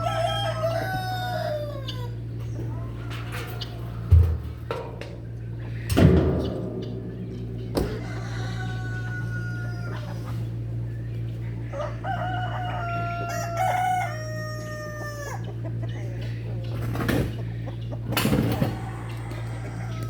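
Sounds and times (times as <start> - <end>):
rooster crowing: 0.0 - 2.2, 7.6 - 10.5, 11.6 - 15.5, 18.7 - 20.0
steady low hum: 0.0 - 20.0.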